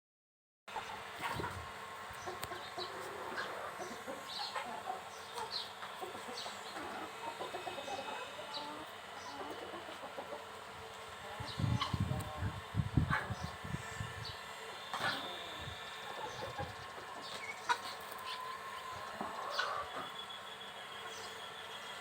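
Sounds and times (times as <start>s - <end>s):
chickens clucking: 0.7s - 22.0s
short high chicken calls: 14.9s - 21.3s.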